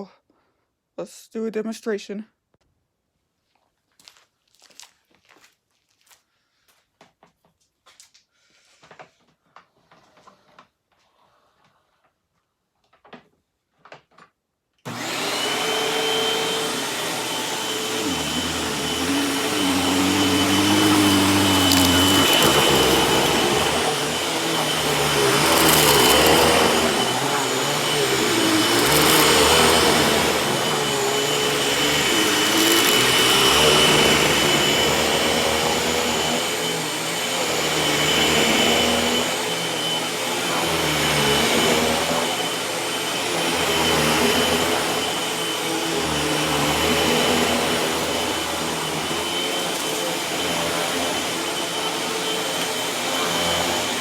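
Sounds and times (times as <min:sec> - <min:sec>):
person talking: 0:01.0 - 0:02.3
vacuum cleaner whining: 0:14.9 - 0:54.0.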